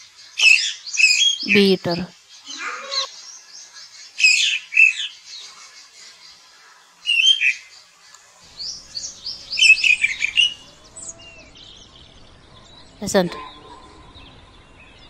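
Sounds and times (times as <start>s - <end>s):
bird chirping: 0.0s - 6.4s, 7.0s - 15.0s.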